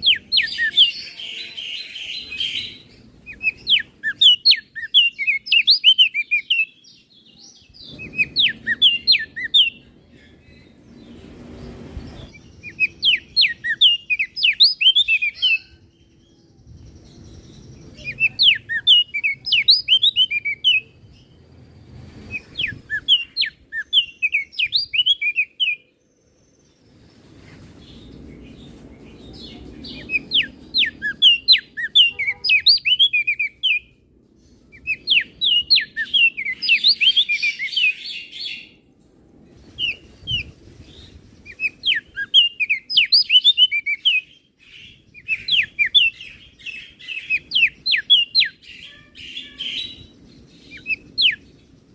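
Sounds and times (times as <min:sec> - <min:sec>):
bird singing high chirps: 0:00.0 - 0:38.8, 0:39.6 - 0:51.9.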